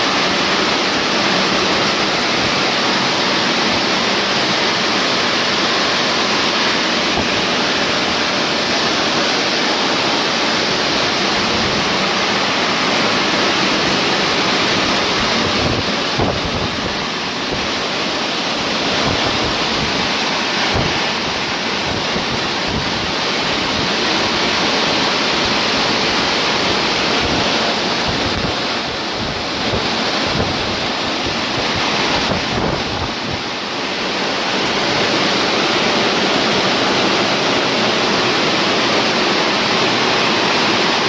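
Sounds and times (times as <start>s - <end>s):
wind buffeting microphone: 0.0s - 37.6s.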